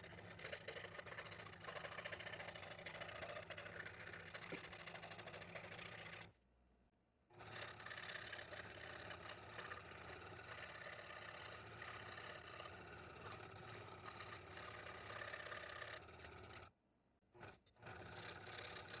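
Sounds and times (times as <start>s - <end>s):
scroll saw cutting wood: 0.0s - 6.3s, 7.4s - 16.7s, 17.4s - 19.0s.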